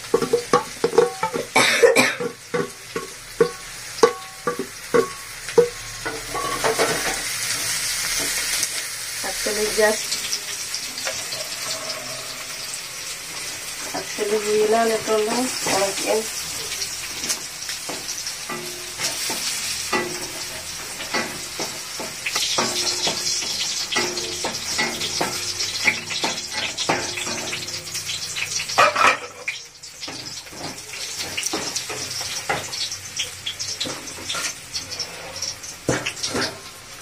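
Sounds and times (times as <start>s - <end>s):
vegetables sizzling in oil: 0.0s - 37.0s
wooden spatula knocking metal pan: 0.1s - 1.6s, 2.2s - 7.0s.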